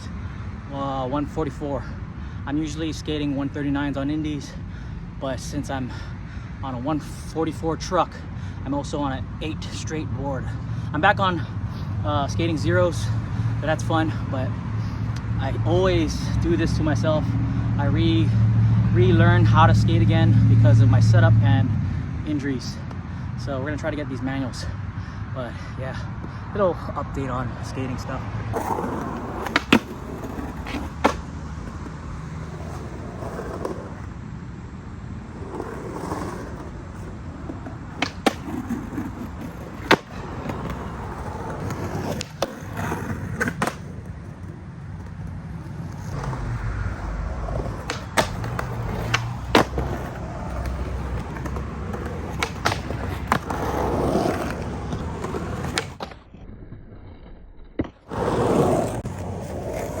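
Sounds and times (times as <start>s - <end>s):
skateboard wheels rumbling: 9.6s - 21.6s, 25.5s - 60.0s
skateboard clacking on ground: 28.5s - 34.1s, 35.4s - 56.3s, 57.8s - 60.0s.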